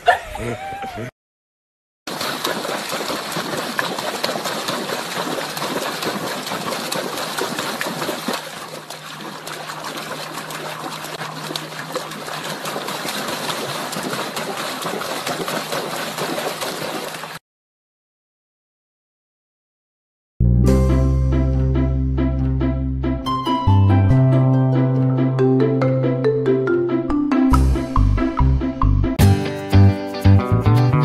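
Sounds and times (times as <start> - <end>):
dog splashing in shallow water: 2.1 - 17.4.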